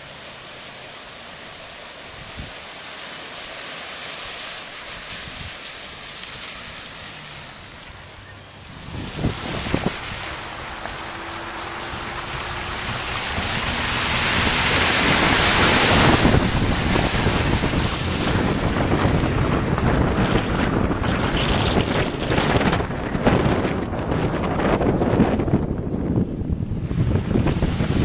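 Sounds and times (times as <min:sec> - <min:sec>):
rushing floodwater: 0:00.0 - 0:28.0
wind gusting on microphone: 0:02.0 - 0:02.7, 0:04.8 - 0:28.0.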